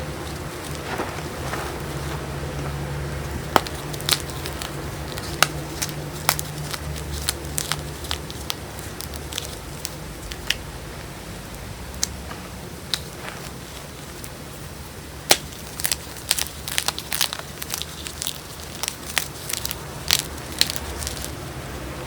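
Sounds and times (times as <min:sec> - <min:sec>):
chalk crunching between fingers: 0:00.0 - 0:10.6, 0:15.3 - 0:21.4
steady low hum: 0:00.0 - 0:22.0.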